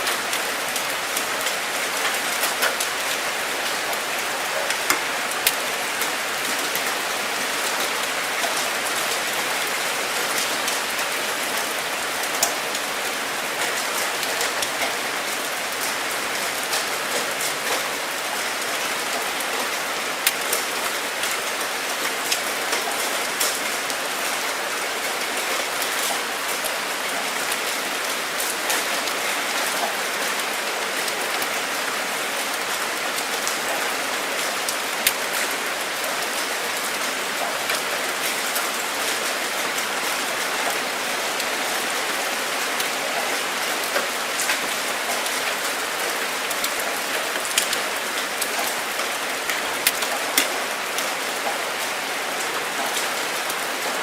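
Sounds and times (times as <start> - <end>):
steady rainfall: 0.0 - 54.0
raindrop ticks: 4.6 - 6.1, 43.8 - 51.6.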